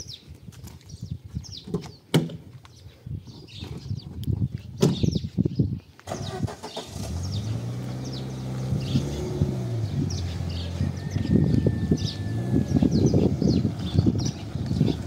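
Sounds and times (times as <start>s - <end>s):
birds chirping: 0.0s - 2.1s, 2.7s - 15.0s
tyres crunching over dirt: 6.0s - 15.0s.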